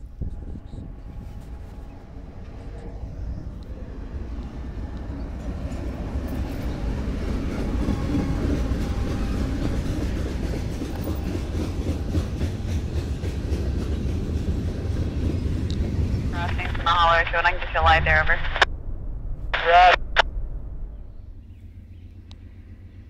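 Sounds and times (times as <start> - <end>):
diesel locomotives passing: 0.0 - 18.7, 19.6 - 23.0
train wheels clacking over rail joints: 7.3 - 15.9.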